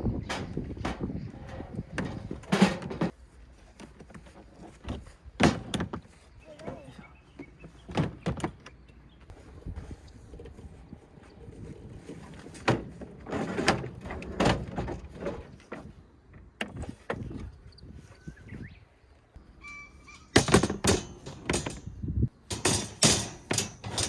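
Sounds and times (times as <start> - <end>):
knocks and clunks: 0.0 - 3.2, 4.0 - 8.8, 12.0 - 17.5, 20.3 - 24.0.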